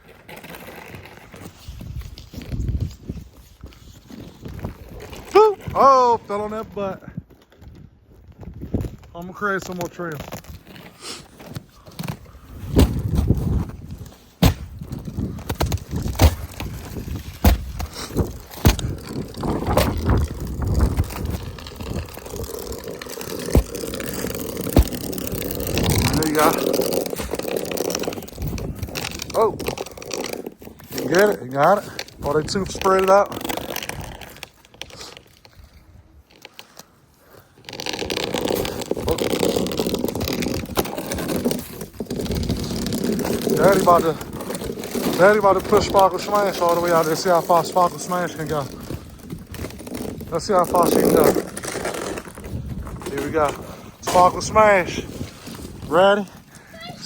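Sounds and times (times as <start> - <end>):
scraping and crunching on snow: 0.0 - 57.0
footsteps crunching through snow: 8.2 - 29.2.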